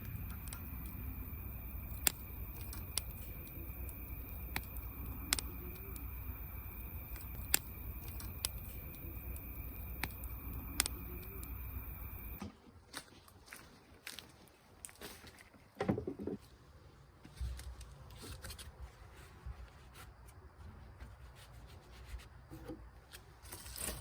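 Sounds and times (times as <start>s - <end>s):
campfire crackling: 0.0s - 12.4s
low rumble: 0.0s - 12.4s.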